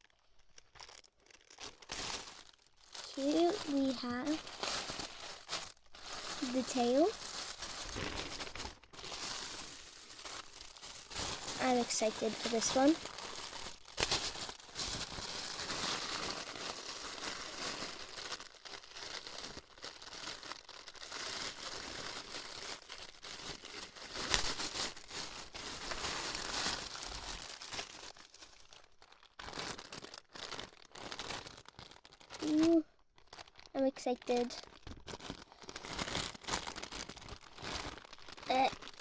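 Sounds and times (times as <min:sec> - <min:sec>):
packaging crinkling and tearing: 0:00.0 - 0:39.0.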